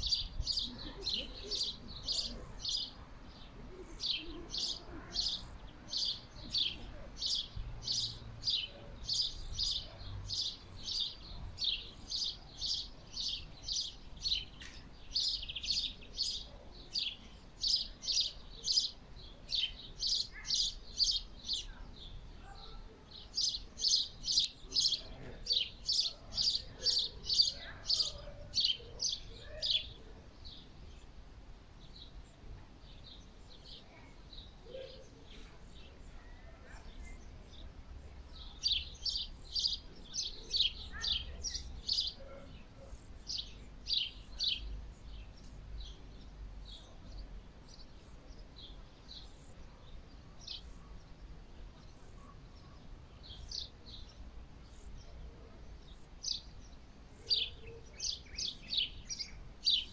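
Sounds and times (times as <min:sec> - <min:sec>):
small bird chirping: 0:00.0 - 0:31.0.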